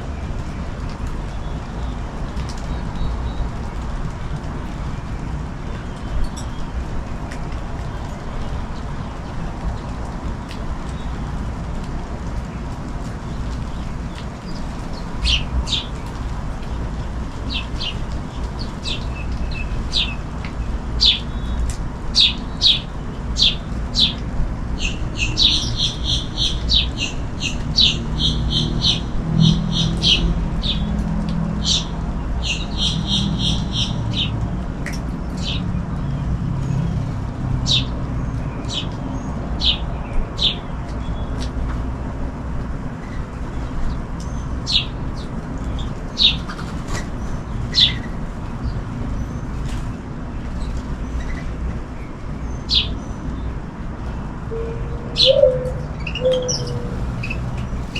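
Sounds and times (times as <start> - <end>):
small songbirds chirping: 13.2 - 24.2, 24.8 - 30.9, 31.6 - 34.3, 54.5 - 57.9
low hum: 54.5 - 57.9.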